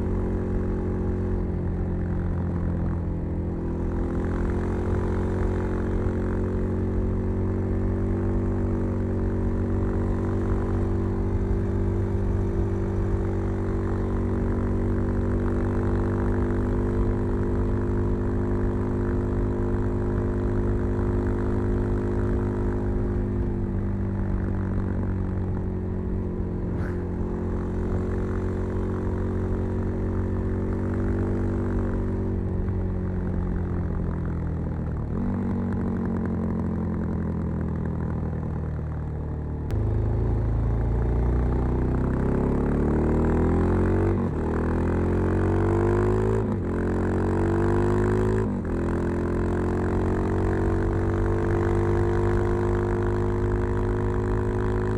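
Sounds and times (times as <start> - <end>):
motorcycle engine revving and shifting: 0.0 - 38.6, 39.7 - 54.9.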